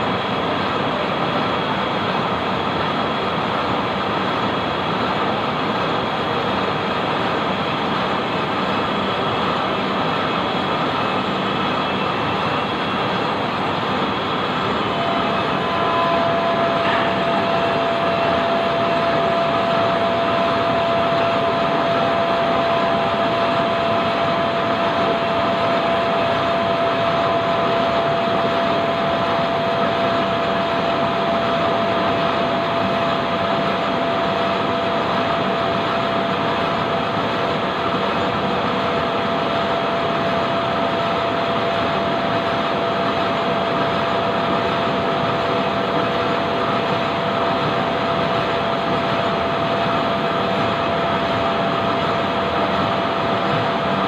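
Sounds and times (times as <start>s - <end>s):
lathe running with whine: 0.0s - 54.0s.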